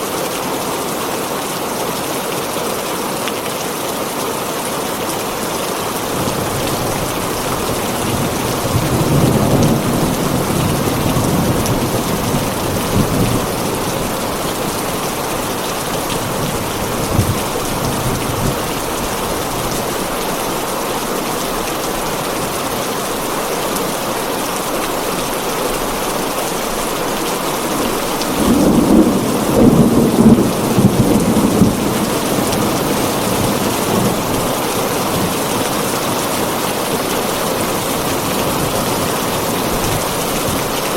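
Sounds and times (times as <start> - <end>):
heavy rain on a tin roof: 0.0 - 40.9
thunder rumbling: 6.0 - 20.4, 26.6 - 40.9.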